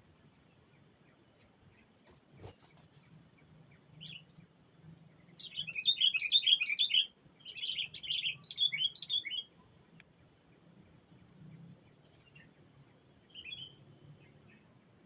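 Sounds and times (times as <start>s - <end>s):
bulbul chirping song: 5.2s - 9.8s, 12.4s - 14.7s.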